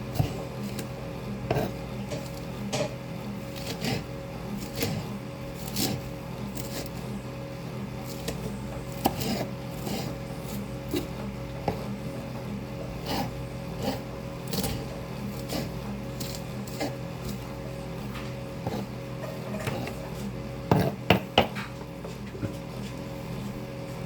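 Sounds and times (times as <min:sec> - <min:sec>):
knife chopping greens: 0:00.0 - 0:07.1, 0:08.0 - 0:12.0, 0:13.0 - 0:20.0, 0:20.7 - 0:21.7
fan humming: 0:00.0 - 0:24.0.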